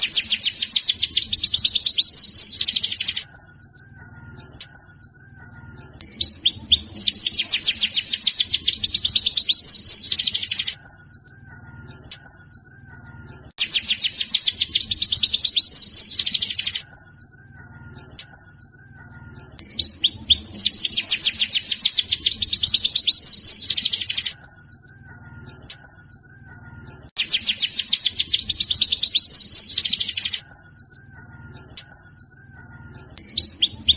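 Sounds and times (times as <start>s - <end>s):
bird song with high trills: 0.0s - 33.9s.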